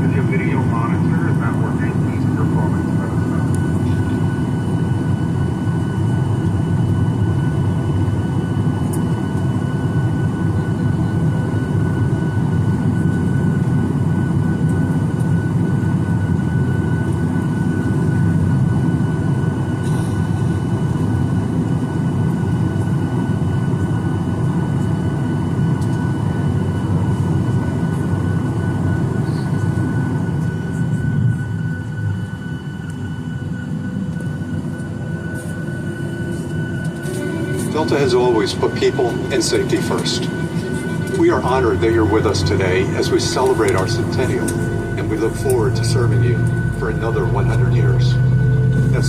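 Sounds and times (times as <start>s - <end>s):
airliner cabin rumble and hiss: 0.0s - 49.0s
high-pitched whine: 25.2s - 49.0s.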